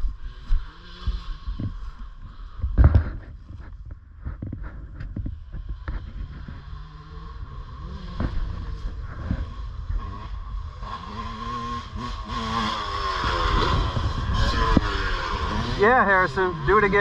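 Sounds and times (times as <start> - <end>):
distant dirt bike engine revving: 0.0 - 17.0
knocks and rustling on microphone: 2.6 - 6.7.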